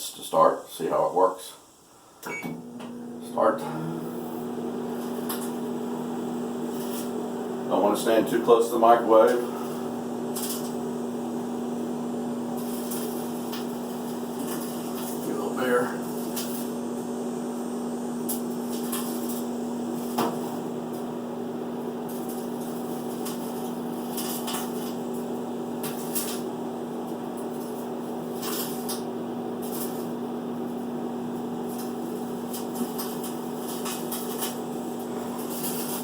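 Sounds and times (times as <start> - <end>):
microwave oven humming: 1.9 - 36.0
sharp electrical clicks: 10.3 - 10.8, 12.6 - 16.7, 18.3 - 21.1, 22.1 - 25.2, 25.8 - 30.1, 31.6 - 36.0.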